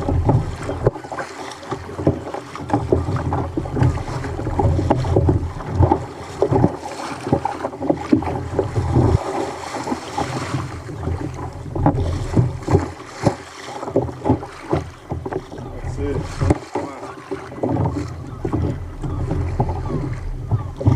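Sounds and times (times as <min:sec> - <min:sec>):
wind buffeting microphone: 0:00.0 - 0:01.2, 0:01.8 - 0:20.9
water splashing against hull: 0:00.0 - 0:20.9.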